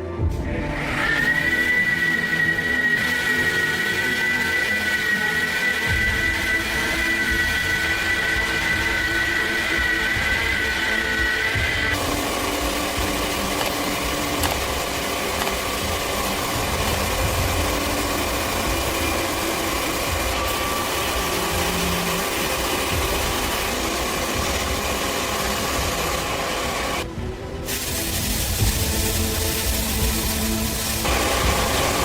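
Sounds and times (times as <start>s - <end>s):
motor running: 5.0s - 27.0s, 28.5s - 32.0s.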